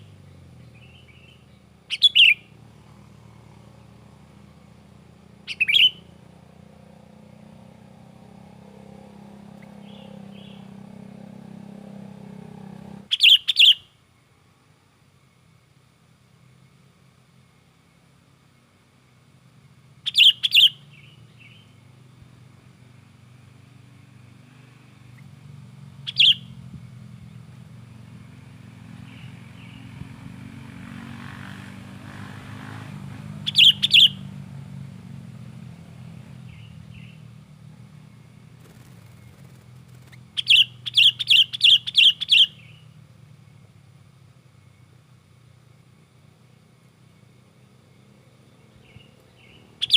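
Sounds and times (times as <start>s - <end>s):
bird giving sharp call notes: 1.9s - 2.5s, 5.5s - 6.1s, 13.1s - 13.9s, 20.1s - 20.8s, 26.1s - 26.5s, 33.5s - 34.2s, 40.4s - 42.8s, 49.4s - 49.9s.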